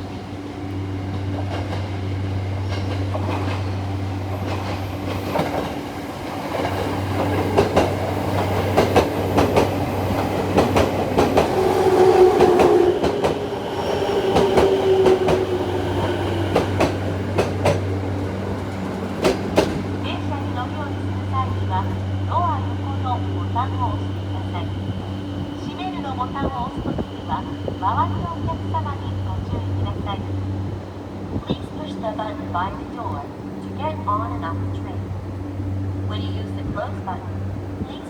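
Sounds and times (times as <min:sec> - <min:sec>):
train wheels clacking over rail joints: 0:06.5 - 0:11.6, 0:14.3 - 0:19.9.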